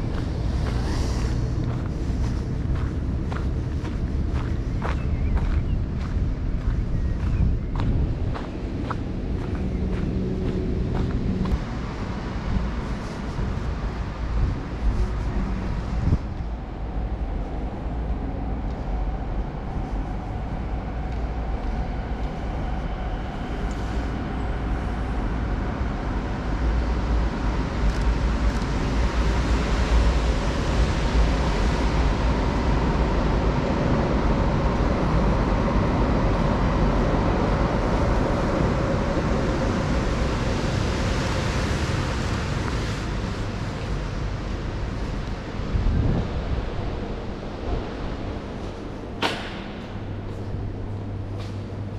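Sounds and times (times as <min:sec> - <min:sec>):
passing vehicles rumbling: 0:00.0 - 0:51.9.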